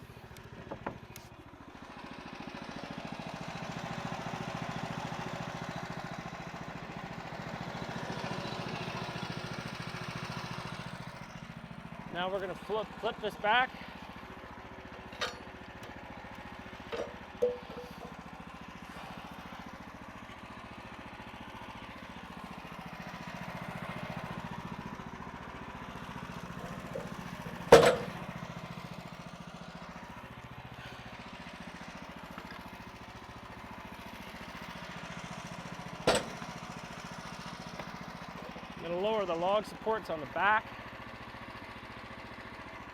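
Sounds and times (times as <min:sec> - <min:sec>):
sawmill engine idling: 0:00.0 - 0:42.9
log knocking on mill: 0:26.6 - 0:28.3, 0:36.1 - 0:36.6.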